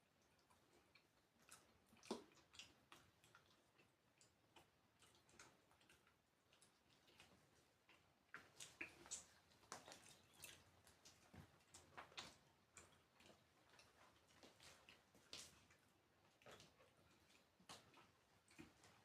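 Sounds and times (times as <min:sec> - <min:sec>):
person chewing food: 0:00.0 - 0:19.0.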